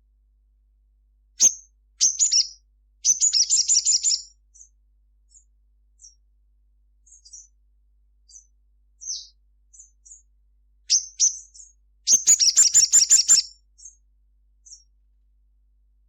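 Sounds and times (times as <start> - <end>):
bird calling high chips: 12.1 - 13.5.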